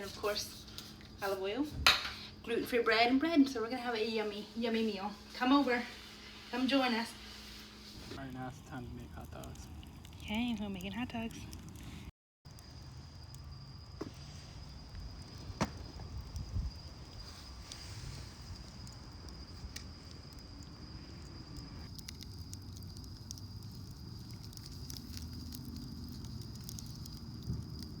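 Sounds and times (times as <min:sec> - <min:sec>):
campfire crackling and popping: 0:07.8 - 0:28.0.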